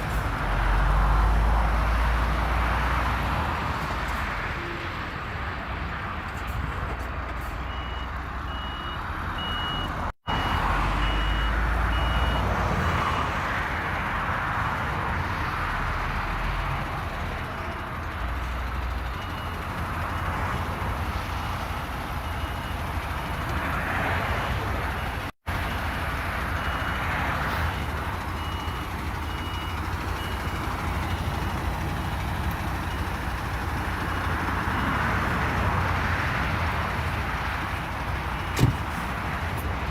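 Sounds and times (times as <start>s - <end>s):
diesel engine running: 5.2s - 39.9s
reversing alarm beeping: 7.7s - 13.3s, 26.5s - 31.4s.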